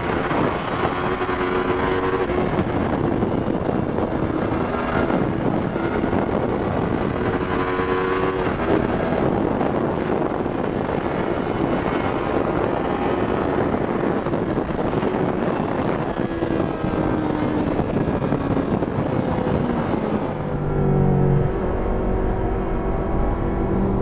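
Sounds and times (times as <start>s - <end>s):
wind rushing over microphone: 0.0s - 24.0s
motorcycle engine running: 20.1s - 24.0s.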